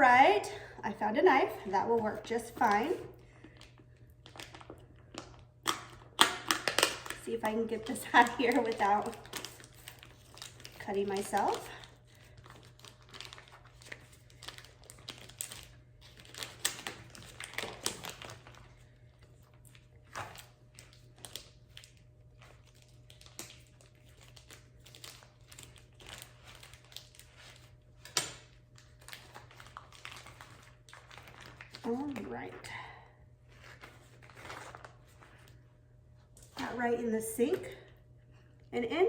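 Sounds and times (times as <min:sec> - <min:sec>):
plastic packaging crinkling: 0:01.8 - 0:32.7, 0:33.5 - 0:35.6.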